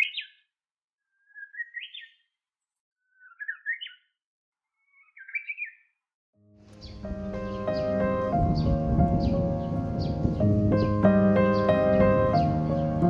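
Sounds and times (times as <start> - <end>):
bird chirping rising phrases: 6.7 - 13.0.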